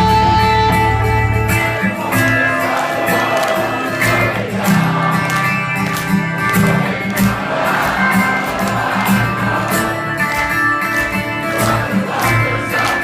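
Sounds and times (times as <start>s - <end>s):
deep bass: 0.0s - 1.5s
electric guitar: 0.0s - 13.0s
live rock band playing: 0.0s - 13.0s.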